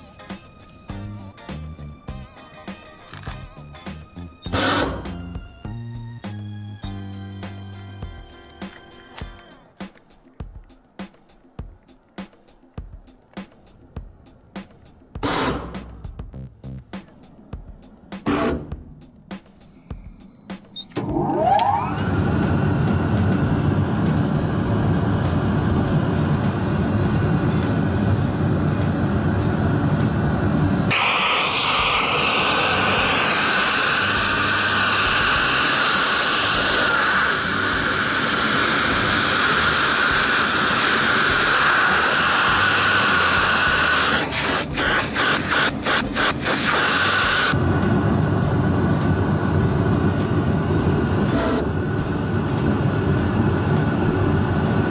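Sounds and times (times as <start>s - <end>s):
dust collector blower running: 21.0s - 54.9s.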